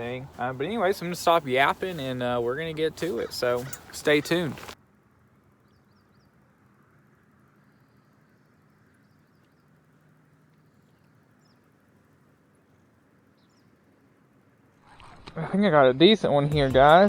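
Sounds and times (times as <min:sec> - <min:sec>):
faint bird chirps: 0:05.6 - 0:06.5, 0:07.4 - 0:14.0.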